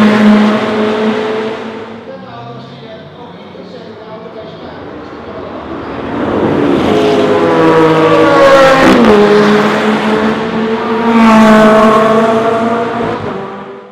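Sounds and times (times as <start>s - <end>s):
car engine accelerating hard: 0.0s - 13.9s.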